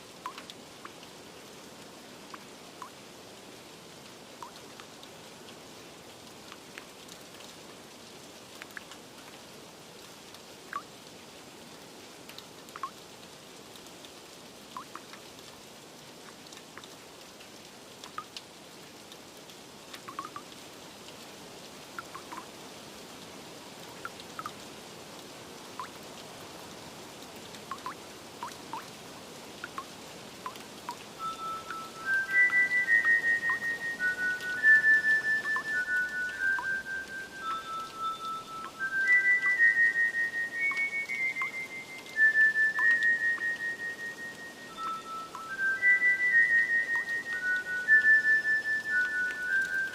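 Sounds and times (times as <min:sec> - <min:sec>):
light rain hiss: 0:00.0 - 0:49.9
water drips plinking: 0:00.2 - 0:01.1, 0:02.3 - 0:03.0, 0:04.4 - 0:05.6, 0:08.6 - 0:09.4, 0:10.7 - 0:10.9, 0:12.3 - 0:13.0, 0:14.7 - 0:15.6, 0:16.2 - 0:18.5, 0:19.9 - 0:21.2, 0:21.9 - 0:22.5, 0:23.8 - 0:26.3, 0:27.4 - 0:49.9.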